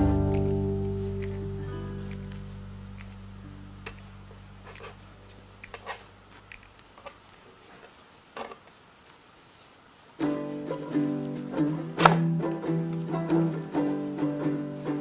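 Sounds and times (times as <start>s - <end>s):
background music: 0.0s - 3.3s
faint room hiss: 0.0s - 15.0s.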